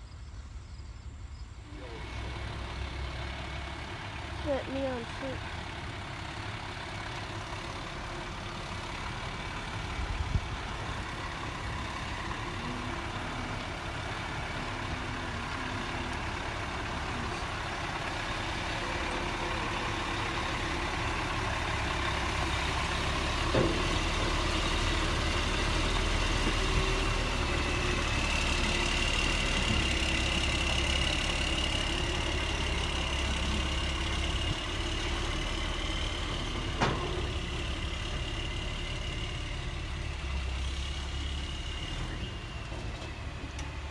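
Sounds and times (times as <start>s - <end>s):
truck engine idling: 0.1s - 43.9s
metal clank: 36.7s - 37.8s.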